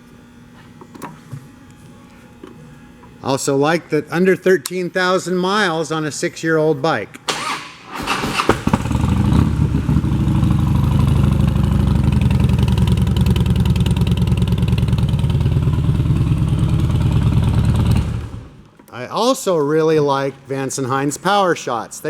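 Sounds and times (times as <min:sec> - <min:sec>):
motorcycle engine starting and idling: 0:07.3 - 0:18.6.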